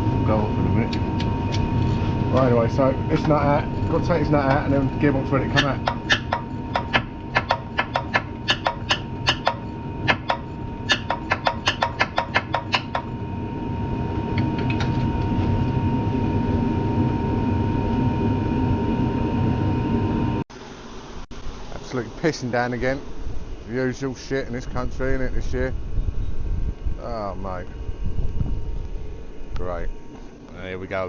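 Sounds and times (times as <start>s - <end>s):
socket ratchet clicking: 5.9s - 13.1s.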